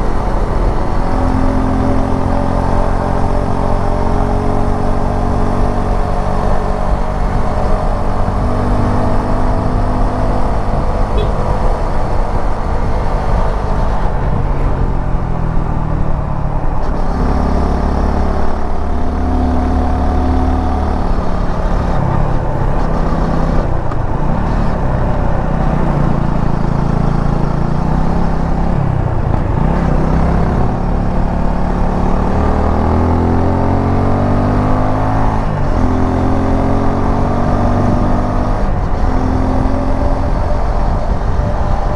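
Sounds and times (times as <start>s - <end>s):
motorcycle engine running: 0.0s - 33.5s.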